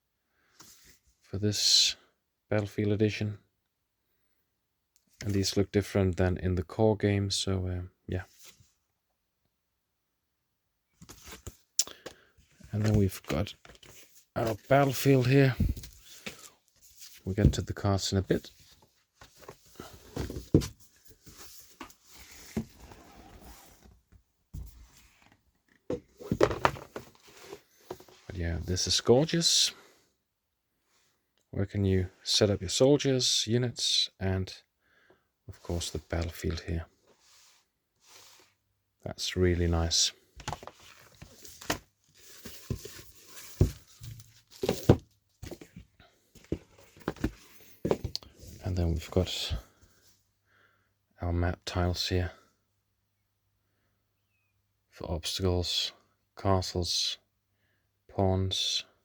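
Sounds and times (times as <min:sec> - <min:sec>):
sliding rustling cardboard: 0:12.5 - 0:17.7, 0:18.3 - 0:23.9, 0:40.4 - 0:48.6.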